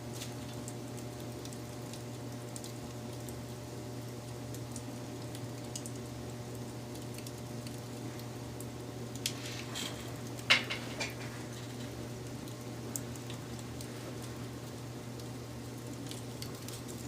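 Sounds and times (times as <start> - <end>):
wood fire burning: 0.0 - 17.0
burning wood popping: 7.0 - 17.0.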